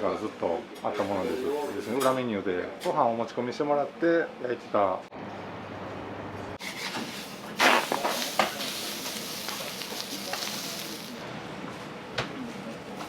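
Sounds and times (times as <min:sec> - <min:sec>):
food sizzling on hot griddle: 0:06.6 - 0:11.2.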